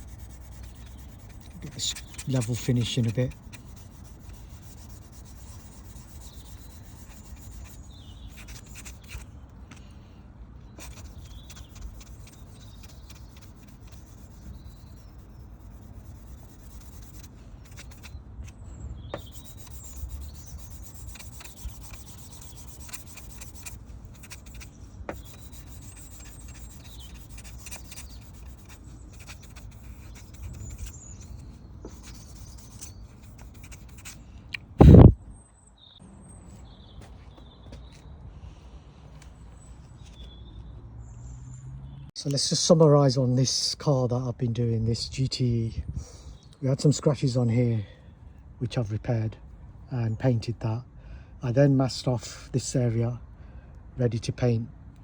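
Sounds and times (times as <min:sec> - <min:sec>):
sandpaper scraping on paint: 0:00.0 - 0:09.3, 0:10.8 - 0:18.6, 0:19.2 - 0:34.2.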